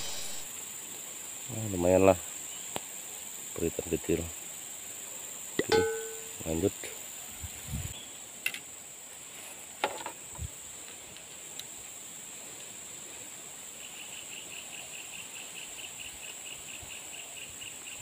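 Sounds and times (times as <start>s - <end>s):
insects droning: 0.0s - 18.0s
rhythmic chirping: 5.6s - 6.5s.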